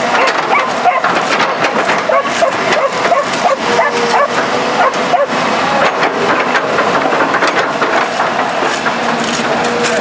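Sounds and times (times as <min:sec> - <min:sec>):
excavator clattering: 0:00.0 - 0:10.0
dog barking and yelping: 0:00.1 - 0:01.2, 0:02.0 - 0:05.4.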